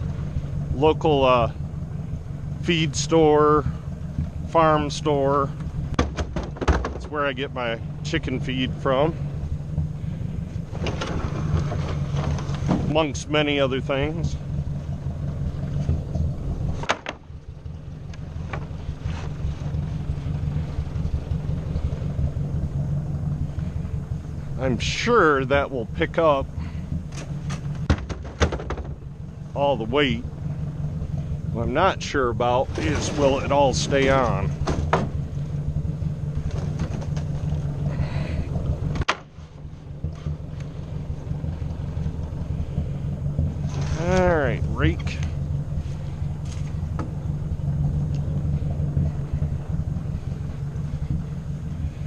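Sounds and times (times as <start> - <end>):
tractor engine rumbling: 0.0 - 52.0
sharp knocks: 6.0 - 7.2, 27.1 - 29.0.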